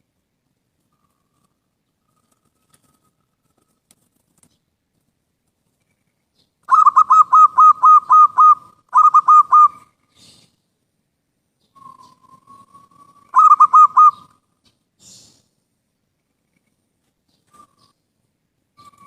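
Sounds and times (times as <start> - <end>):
dove cooing: 6.7 - 10.3, 12.0 - 14.4.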